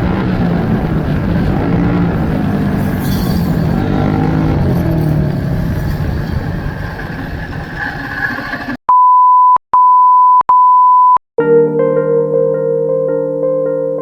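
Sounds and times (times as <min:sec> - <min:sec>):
noisy rumble: 0:00.0 - 0:08.8
synthesizer music: 0:11.4 - 0:14.0.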